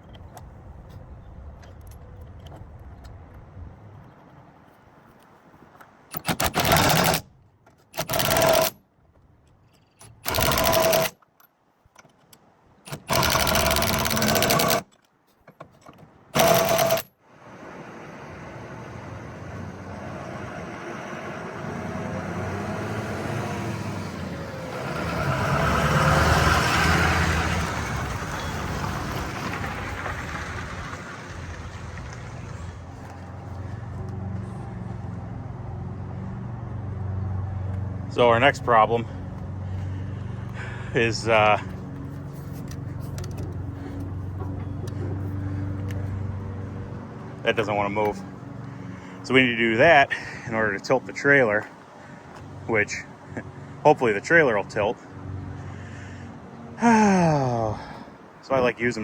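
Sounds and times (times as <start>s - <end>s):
power tool rattling bursts: 6.1s - 7.3s, 7.9s - 8.8s, 10.1s - 11.2s, 12.9s - 14.9s, 16.3s - 17.1s
steady mechanical running noise: 8.0s - 8.8s, 10.1s - 11.1s, 12.9s - 14.9s, 16.4s - 25.1s.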